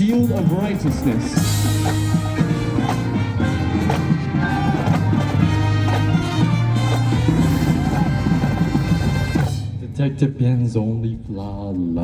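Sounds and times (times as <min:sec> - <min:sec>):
marching band brass: 0:00.0 - 0:10.0
percussion: 0:00.0 - 0:12.0.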